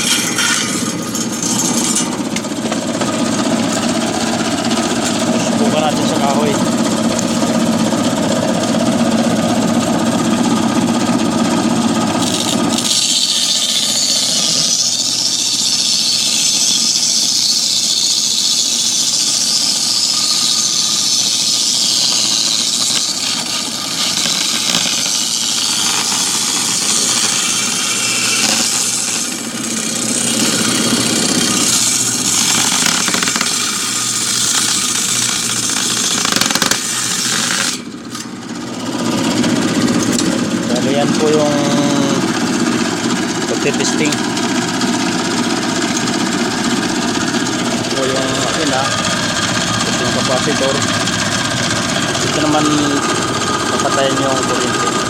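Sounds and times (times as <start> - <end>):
saw blade cutting plywood: 0.0 - 9.7, 10.4 - 55.0
table saw motor running: 0.0 - 55.0.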